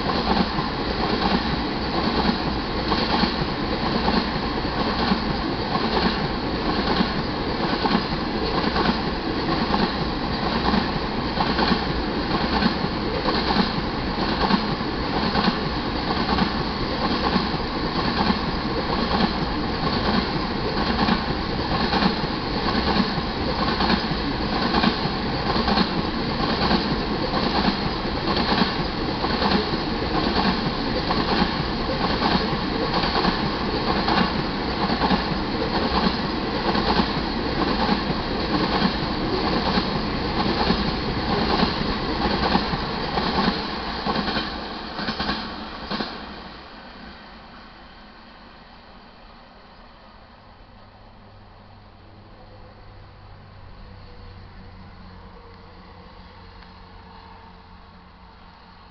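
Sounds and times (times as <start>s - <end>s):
train wheels clicking over rail joints: 0.0s - 46.4s.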